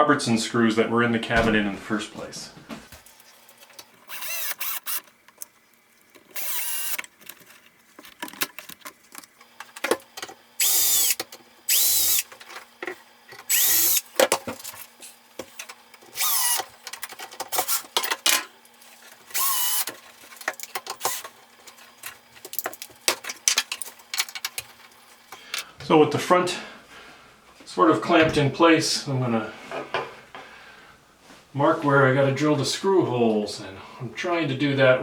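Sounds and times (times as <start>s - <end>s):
cordless drill driving screws: 4.1s - 5.1s, 6.3s - 7.1s, 10.6s - 12.3s, 13.5s - 14.0s, 16.1s - 16.7s, 19.3s - 19.9s
handling clicks and rattles: 19.9s - 24.9s.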